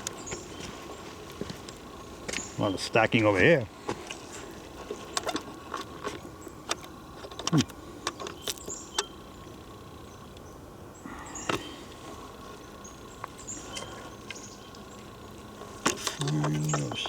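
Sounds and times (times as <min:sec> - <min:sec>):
footsteps crackling in forest litter: 0:00.0 - 0:07.2.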